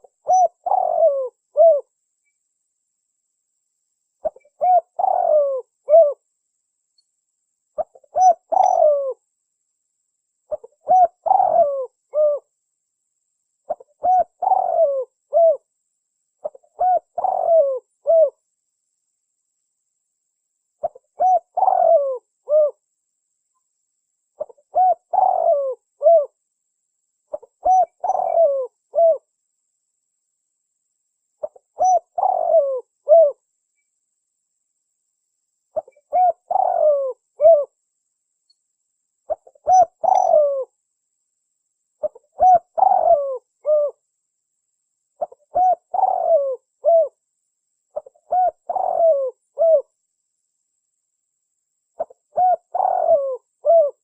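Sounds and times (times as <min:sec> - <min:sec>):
dove cooing: 0:00.0 - 0:01.9, 0:04.2 - 0:06.2, 0:07.8 - 0:09.2, 0:10.5 - 0:12.5, 0:13.7 - 0:15.7, 0:16.4 - 0:18.4, 0:20.8 - 0:22.8, 0:24.4 - 0:26.4, 0:27.3 - 0:29.3, 0:31.4 - 0:33.4, 0:35.8 - 0:37.8, 0:39.3 - 0:40.7, 0:42.0 - 0:44.0, 0:45.2 - 0:47.2, 0:47.9 - 0:49.9, 0:52.0 - 0:54.0.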